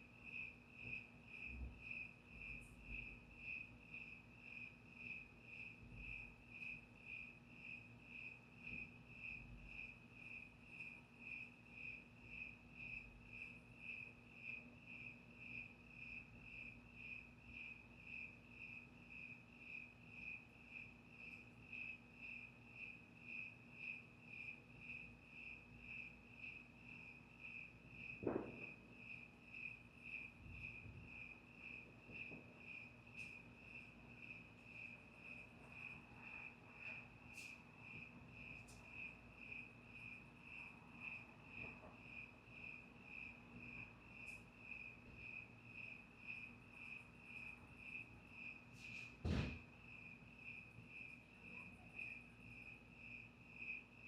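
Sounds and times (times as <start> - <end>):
crickets chirping: 0.0 - 54.0
brief thump: 28.2 - 28.8, 49.0 - 49.6.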